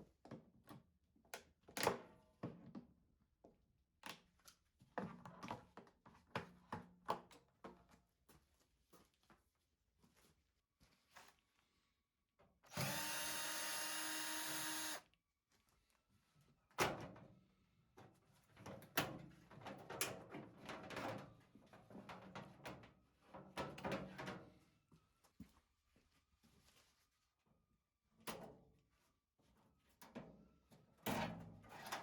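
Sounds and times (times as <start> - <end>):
electric drill running: 12.7 - 15.0.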